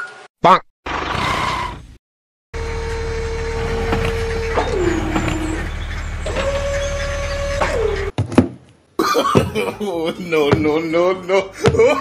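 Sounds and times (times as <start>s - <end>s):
engine rumble: 2.6s - 8.1s
hydraulic whine sliding down: 2.6s - 8.1s.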